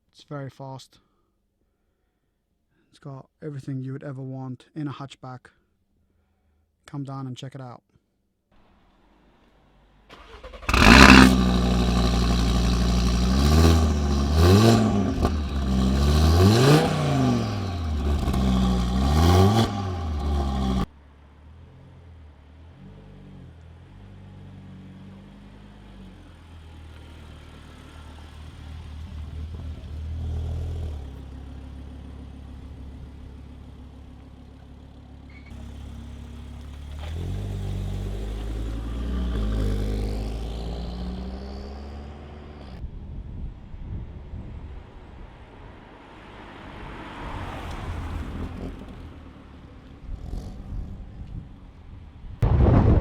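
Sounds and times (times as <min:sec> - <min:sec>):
car engine revving: 0:10.1 - 0:42.8.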